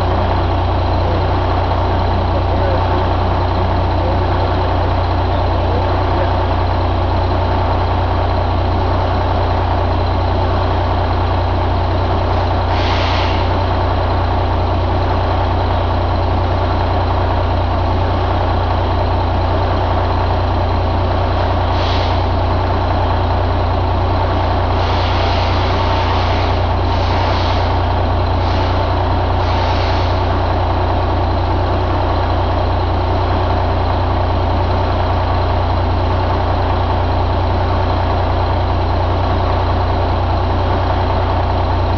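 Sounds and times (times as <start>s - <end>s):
diesel engine idling: 0.0s - 41.9s
short hisses: 12.7s - 13.5s, 21.7s - 22.3s.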